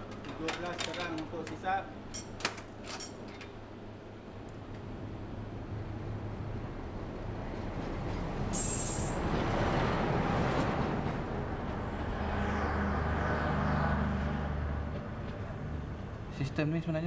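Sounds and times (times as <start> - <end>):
train rumbling past: 3.8 - 17.0
high squeal: 8.6 - 9.2.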